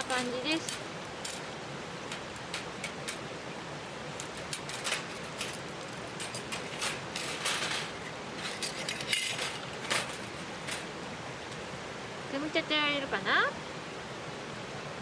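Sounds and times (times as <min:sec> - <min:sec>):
metal parts clinking: 0:00.0 - 0:03.2, 0:04.1 - 0:11.0
background hiss: 0:00.0 - 0:15.0
rustling: 0:03.8 - 0:11.8.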